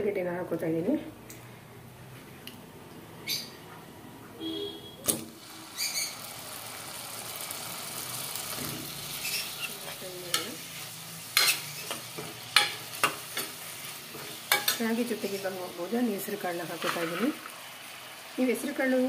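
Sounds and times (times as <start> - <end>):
potatoes sizzling in oil: 5.3 - 19.0.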